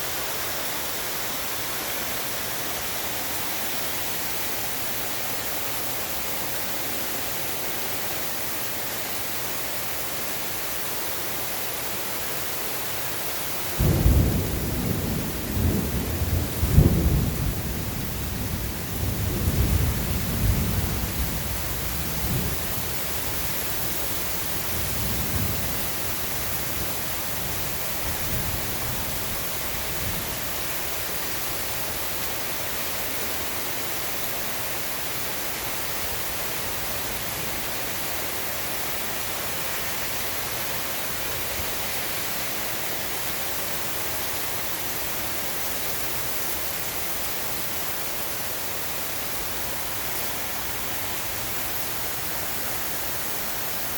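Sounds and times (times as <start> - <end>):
steady rain hiss: 0.0 - 53.9
thunder rumbling: 13.8 - 30.3.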